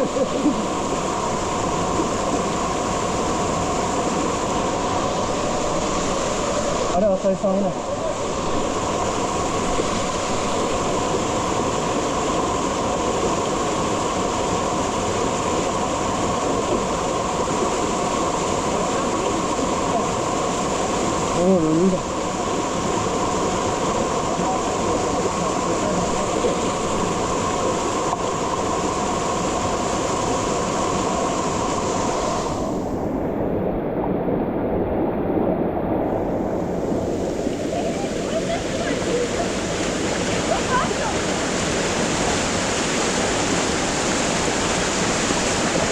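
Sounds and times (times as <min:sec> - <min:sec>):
waterfall rushing water: 0:00.0 - 0:33.6, 0:36.0 - 0:45.9.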